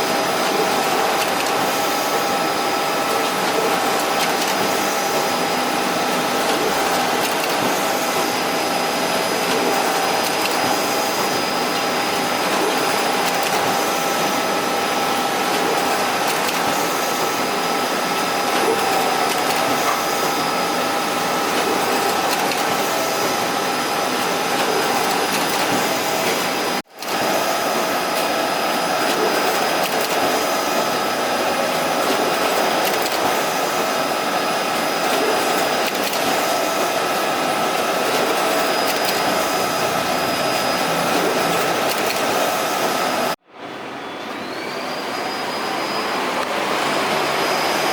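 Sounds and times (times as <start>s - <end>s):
printer machine whir: 0.0s - 47.9s.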